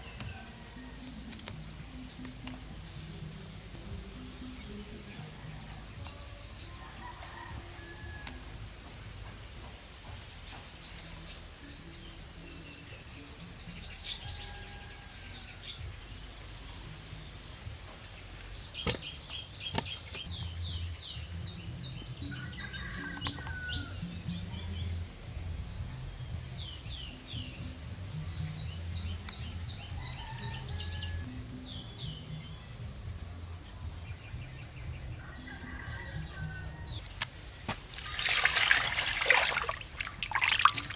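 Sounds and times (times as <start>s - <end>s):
birds chirping: 26.5s - 40.9s.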